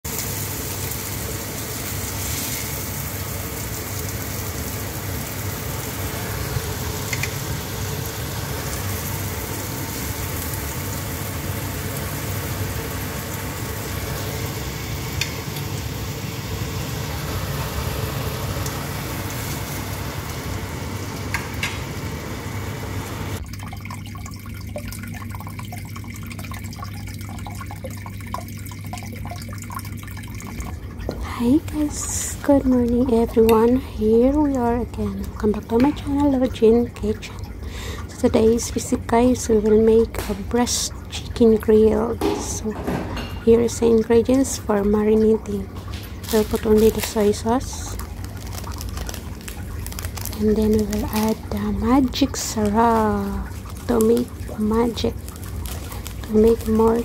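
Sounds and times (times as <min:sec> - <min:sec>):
chicken sizzling in a frying pan: 0:00.0 - 0:23.4, 0:45.9 - 0:57.0
low steady hum: 0:00.0 - 0:57.0.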